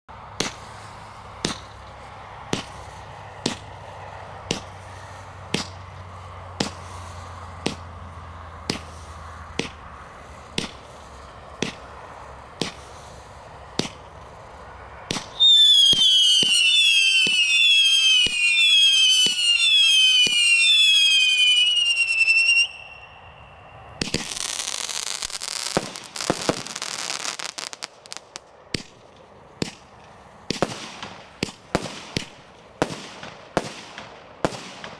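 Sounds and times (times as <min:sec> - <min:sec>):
firework crackling and pops: 0:00.4 - 0:22.9, 0:24.0 - 0:34.9
firework shots: 0:00.4 - 0:23.2, 0:24.0 - 0:34.9
falling firework whistles: 0:15.1 - 0:28.9.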